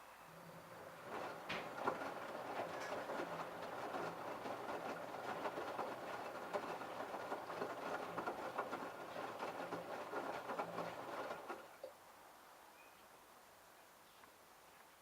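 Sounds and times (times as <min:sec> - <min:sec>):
washing machine drum churning: 0:00.6 - 0:11.8.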